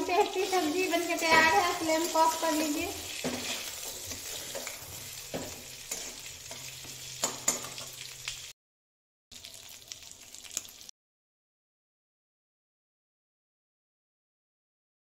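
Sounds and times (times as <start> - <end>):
vegetables sizzling in oil: 0.0 - 8.6, 9.3 - 10.9
metal spatula scraping: 0.1 - 8.5.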